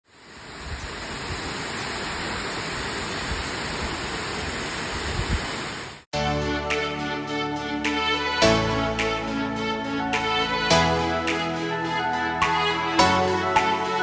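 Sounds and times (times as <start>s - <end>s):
waterfall rushing: 0.1s - 6.0s
background music: 6.2s - 14.0s.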